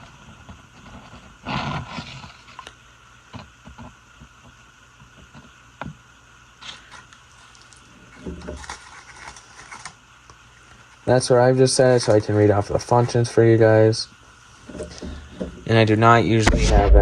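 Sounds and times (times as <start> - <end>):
faint hum: 0.0 - 17.0
paper rustling: 6.6 - 10.0.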